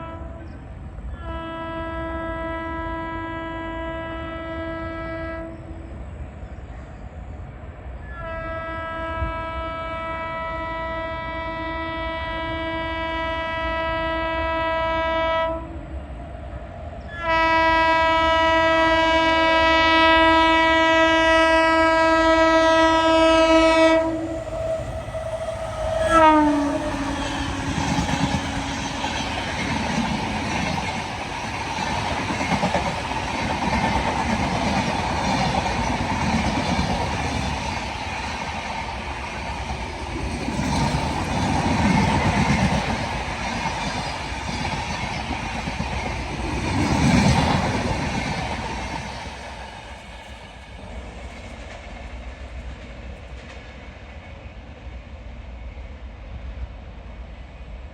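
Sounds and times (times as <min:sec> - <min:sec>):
locomotive horn blasts: 0:00.0 - 0:00.5, 0:01.2 - 0:05.9, 0:08.1 - 0:15.8, 0:17.1 - 0:29.2
train coaches rushing past: 0:21.0 - 0:56.0.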